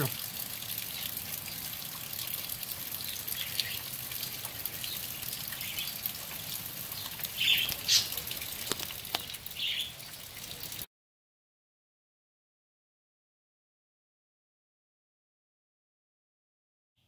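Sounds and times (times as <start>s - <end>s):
rain falling on a tent: 0.0s - 10.8s
water drips: 0.0s - 10.9s
bird chirping: 4.8s - 6.0s, 6.9s - 8.5s, 9.2s - 10.2s.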